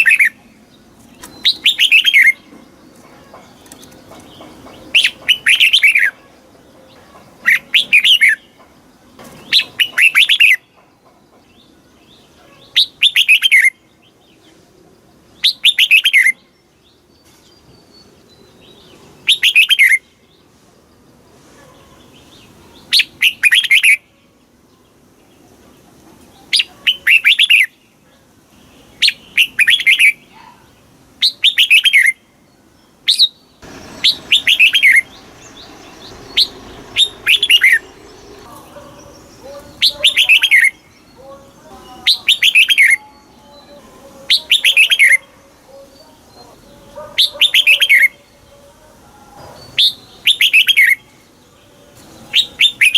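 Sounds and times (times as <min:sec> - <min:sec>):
bird singing whistled phrases: 0:01.2 - 0:02.4, 0:12.8 - 0:13.8, 0:15.4 - 0:16.4, 0:19.2 - 0:20.0, 0:22.9 - 0:24.0, 0:26.6 - 0:27.7, 0:29.0 - 0:30.2, 0:31.2 - 0:32.2, 0:34.0 - 0:35.1, 0:36.3 - 0:37.9, 0:39.7 - 0:40.9, 0:42.0 - 0:45.3, 0:47.2 - 0:48.2, 0:49.7 - 0:51.1, 0:52.2 - 0:52.9.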